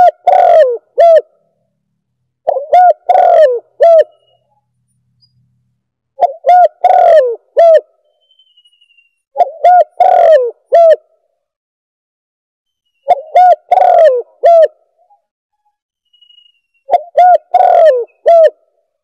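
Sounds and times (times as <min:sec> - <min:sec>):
dove cooing: 0:00.0 - 0:01.4, 0:02.4 - 0:04.4, 0:06.2 - 0:07.9, 0:09.4 - 0:11.1, 0:13.1 - 0:14.8, 0:16.9 - 0:18.7.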